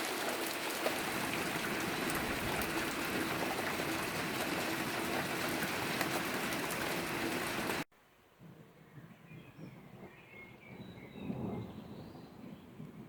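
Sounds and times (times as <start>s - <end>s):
heavy rain pouring: 0.0s - 7.9s.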